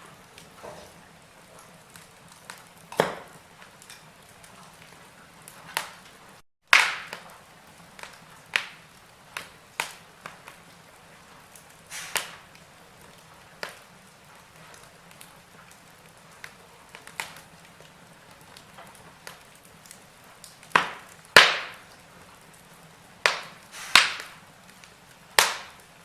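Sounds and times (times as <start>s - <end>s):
log fire crackling: 0.0s - 26.0s
soft fire hiss: 0.0s - 26.0s.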